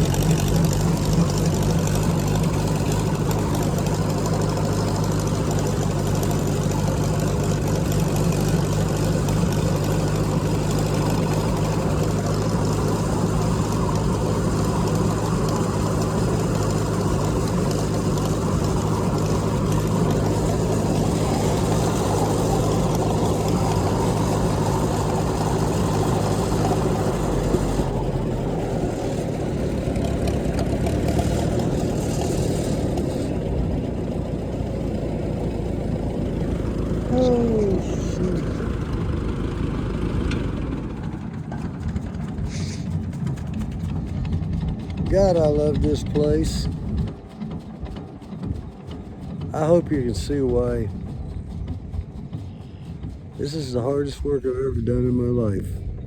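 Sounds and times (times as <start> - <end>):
tractor engine droning: 0.0 - 56.0.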